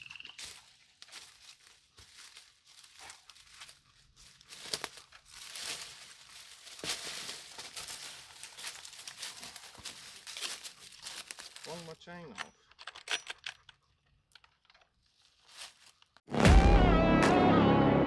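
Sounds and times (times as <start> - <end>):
dry brush rustling and crackling: 0.3 - 12.0, 15.0 - 16.2.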